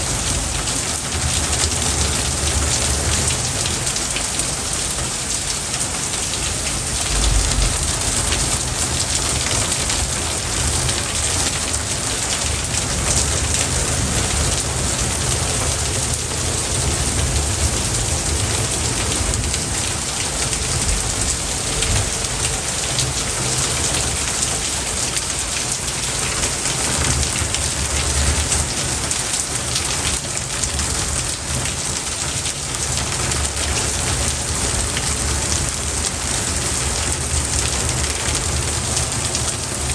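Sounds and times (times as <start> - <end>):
steady rain hiss: 0.0 - 39.9
deep low rumbles: 6.8 - 9.9.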